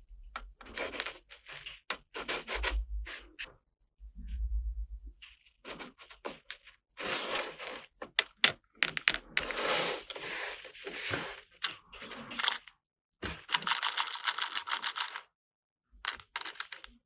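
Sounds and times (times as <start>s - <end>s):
plastic toy pieces clicking: 13.2s - 15.2s, 16.1s - 17.0s.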